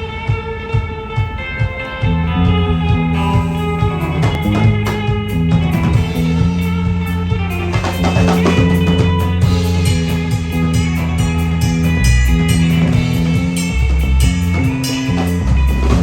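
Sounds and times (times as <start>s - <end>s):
bass guitar: 0.0s - 16.0s
drum kit beat: 0.0s - 16.0s
electric guitars: 0.0s - 16.0s.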